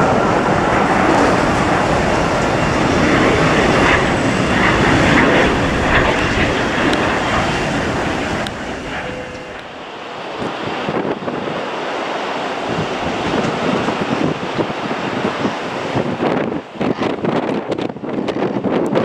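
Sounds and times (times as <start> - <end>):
airliner engine roar: 0.0 - 19.0.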